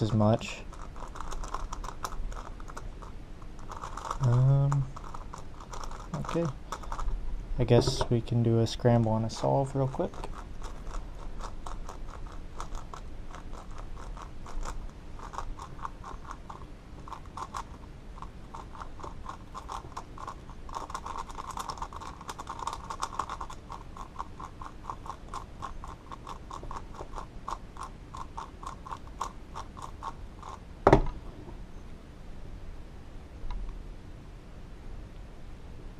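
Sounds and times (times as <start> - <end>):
plastic puzzle cube clicking: 14.5 - 27.2
loud knock: 30.8 - 31.2.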